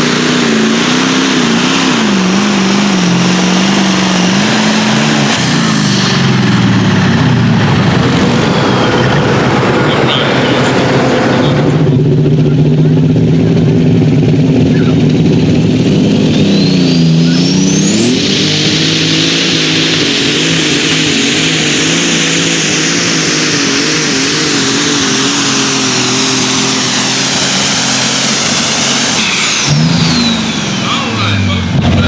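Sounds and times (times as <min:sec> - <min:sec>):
engine pulling at full load: 0:00.0 - 0:32.0
turbo whistle: 0:16.0 - 0:32.0.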